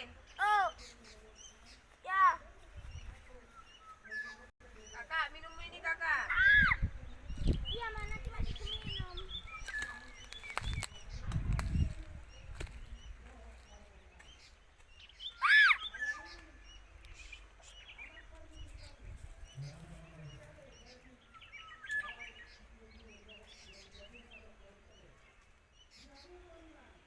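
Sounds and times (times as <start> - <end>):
birds calling and chirping: 0.0 - 27.0.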